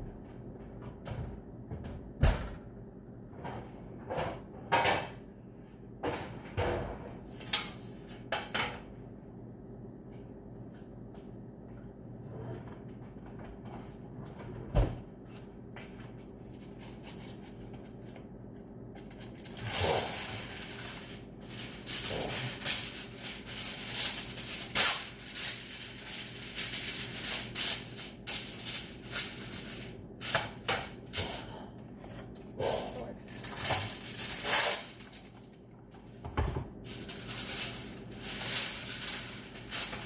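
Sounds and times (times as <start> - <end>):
rustling and small clattering: 33.2 - 40.0.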